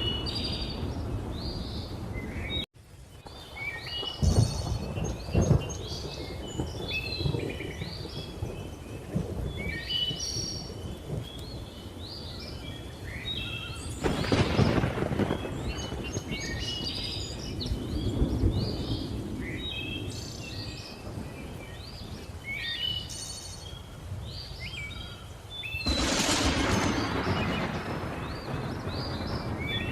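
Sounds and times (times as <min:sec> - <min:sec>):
birds chirping and whistling: 0:00.0 - 0:29.9
rumbling thunder: 0:03.2 - 0:12.1, 0:13.9 - 0:22.2, 0:25.8 - 0:29.9
loud thunderclap: 0:04.0 - 0:11.3, 0:14.0 - 0:19.6, 0:25.8 - 0:29.9.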